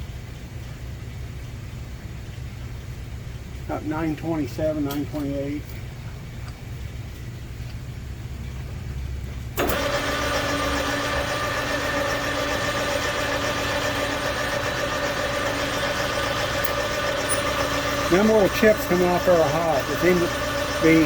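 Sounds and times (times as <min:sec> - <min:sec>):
low machine hum: 0:00.0 - 0:21.0
lathe cutting metal with ringing: 0:09.6 - 0:21.0.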